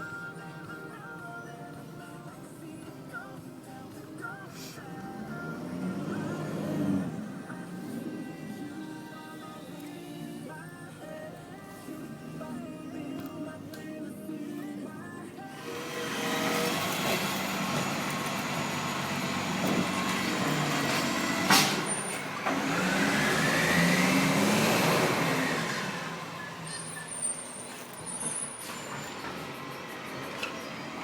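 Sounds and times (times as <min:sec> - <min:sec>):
rubbish truck engine revving: 0:05.1 - 0:08.5, 0:15.6 - 0:31.0.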